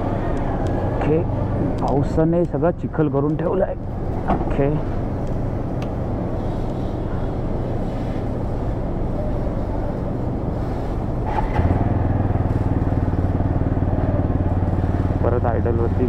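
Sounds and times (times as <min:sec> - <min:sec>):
motorcycle engine idling: 0:11.6 - 0:16.0.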